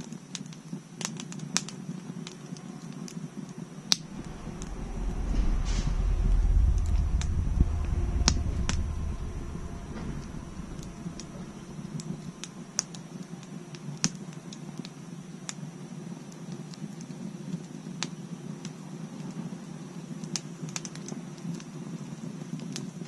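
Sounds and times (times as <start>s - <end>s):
low rush of flames: 3.9s - 13.6s.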